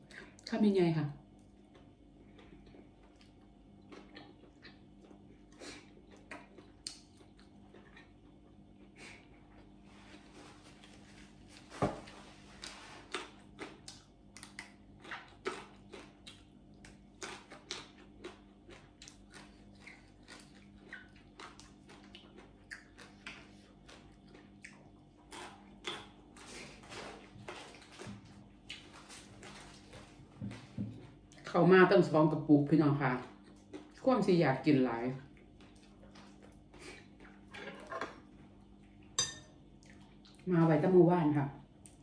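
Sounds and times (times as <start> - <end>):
crunchy chewing: 1.4 - 9.8, 10.7 - 30.2, 33.2 - 34.1, 35.2 - 37.6.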